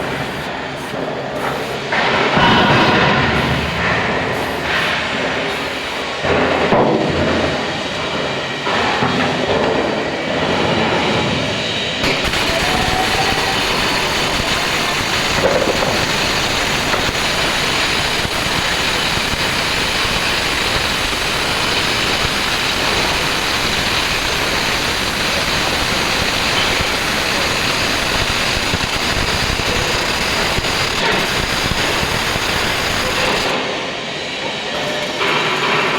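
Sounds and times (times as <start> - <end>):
welding noise: 0.0 - 6.8, 12.0 - 33.7.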